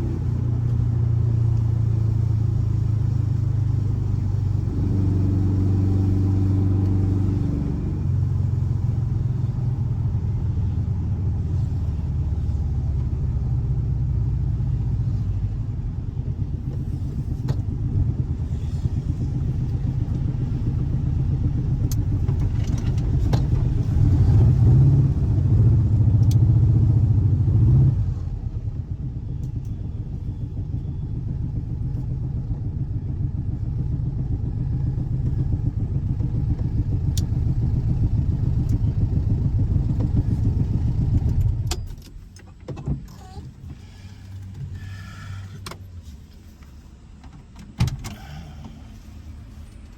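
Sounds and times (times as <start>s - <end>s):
car engine running: 0.0s - 49.9s.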